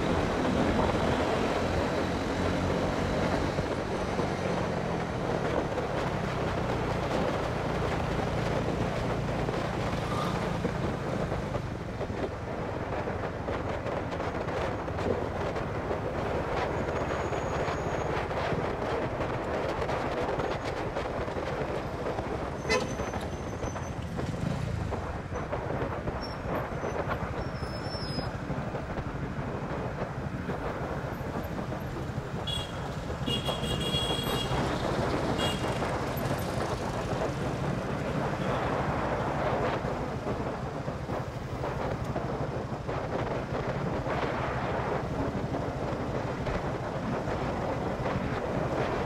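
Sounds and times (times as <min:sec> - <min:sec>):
road and wind noise: 0:00.0 - 0:49.0.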